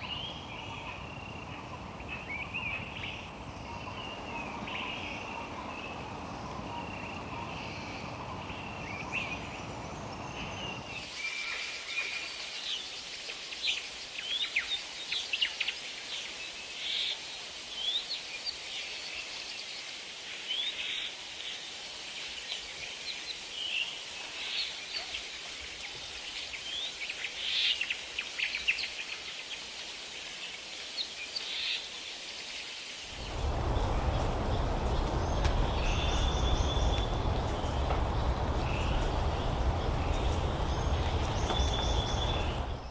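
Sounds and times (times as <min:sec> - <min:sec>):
steady hiss: 0:10.9 - 0:42.9
birds chirping and whistling: 0:33.1 - 0:42.9
loud low rumble: 0:33.1 - 0:42.9.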